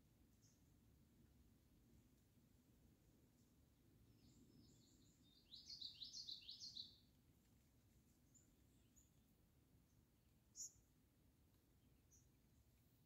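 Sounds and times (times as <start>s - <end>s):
songbird singing: 0.3s - 0.7s, 4.0s - 7.2s, 8.1s - 13.0s.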